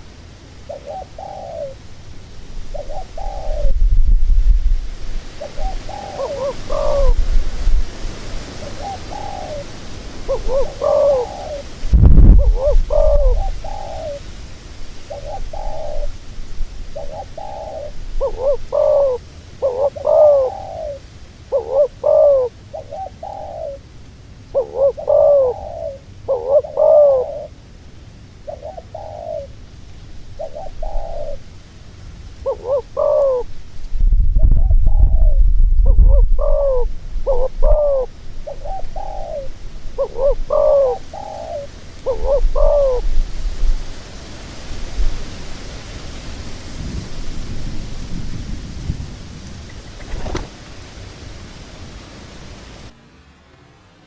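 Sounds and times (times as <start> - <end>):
doves cooing: 0.0 - 4.0, 4.8 - 27.6, 28.3 - 31.6, 32.4 - 33.8, 34.4 - 43.9
low rumble: 3.5 - 5.2, 33.6 - 37.9.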